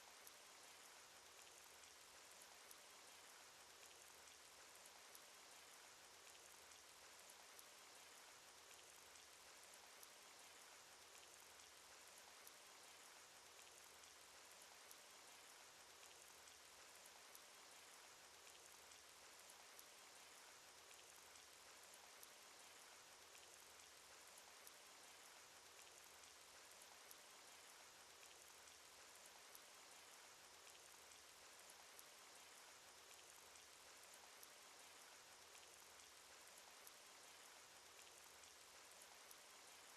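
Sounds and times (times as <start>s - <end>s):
faint steady rain: 0.0s - 39.9s
small drop ticks: 0.1s - 6.9s, 17.2s - 39.9s.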